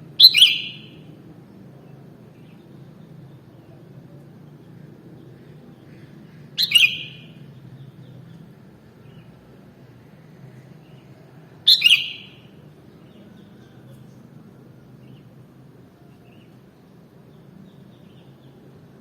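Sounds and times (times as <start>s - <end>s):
low background hum: 0.0s - 19.0s
bird calls: 0.2s - 1.0s, 5.3s - 8.5s, 10.9s - 12.6s.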